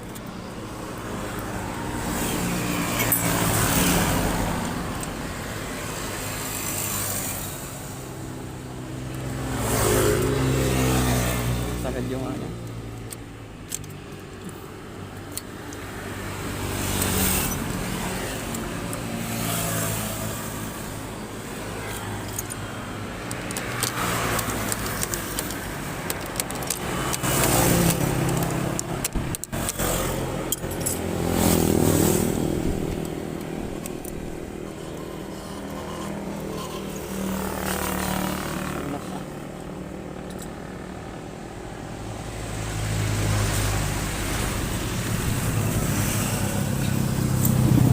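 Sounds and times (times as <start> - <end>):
traffic passing: 0.0 - 47.9
metallic clinks and jangles: 2.9 - 4.0, 29.7 - 32.1.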